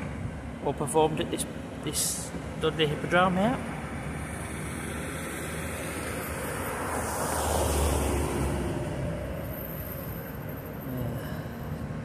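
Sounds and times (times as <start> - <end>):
vehicle passing by: 4.6 - 10.0.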